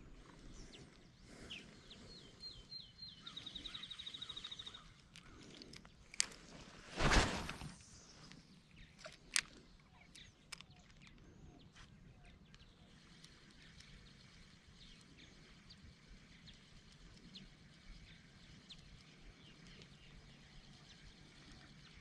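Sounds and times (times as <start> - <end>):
faint bird chirps: 0.0 - 5.8.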